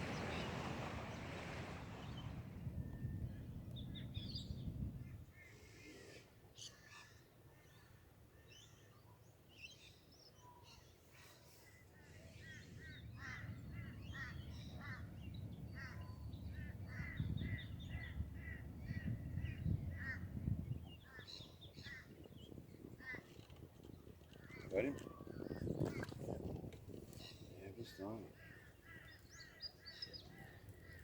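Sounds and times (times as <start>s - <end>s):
birds calling: 0.0s - 2.5s, 9.6s - 26.2s, 27.1s - 31.0s.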